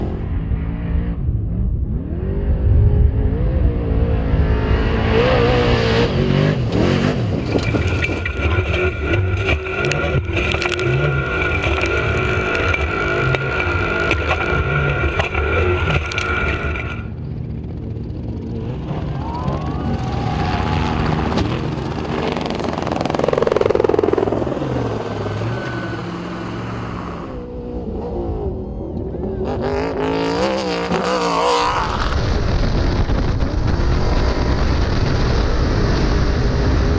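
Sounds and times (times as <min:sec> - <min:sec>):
steady high whine: 0:07.3 - 0:29.7
truck engine revving hard: 0:18.6 - 0:28.5.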